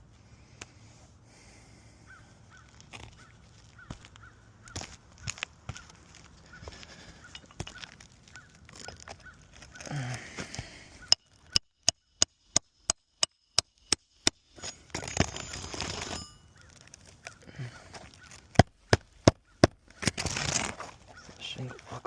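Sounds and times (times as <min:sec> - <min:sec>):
scraping rustle: 0:14.6 - 0:18.5, 0:19.9 - 0:22.0.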